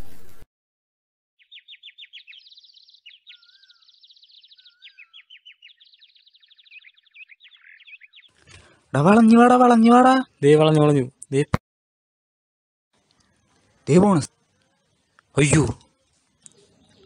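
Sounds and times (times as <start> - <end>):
birds trilling chirps: 1.4 - 10.5, 13.0 - 17.0.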